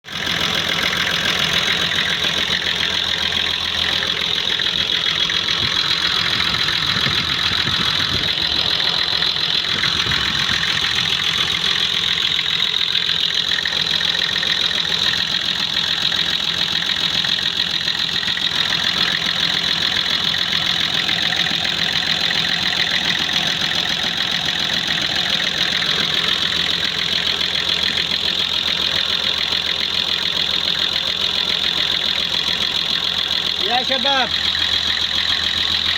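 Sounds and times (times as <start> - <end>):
car engine idling: 0.0 - 35.9.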